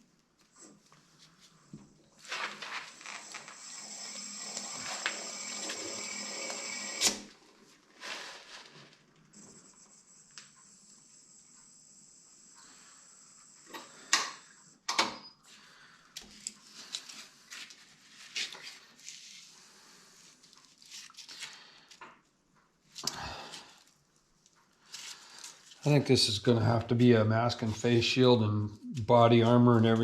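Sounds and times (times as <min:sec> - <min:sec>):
faint high whine: 0:09.3 - 0:15.4.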